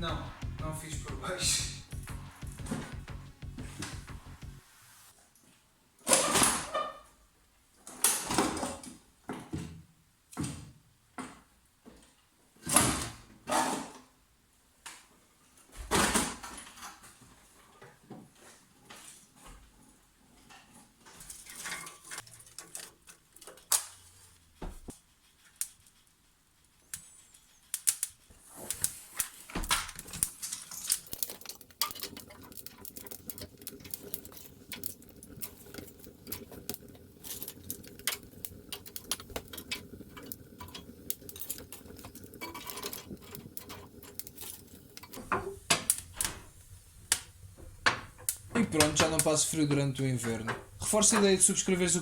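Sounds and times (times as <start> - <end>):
low hum: 0.0 - 5.1
wood fire crackling in stove: 0.0 - 5.2, 15.8 - 52.0.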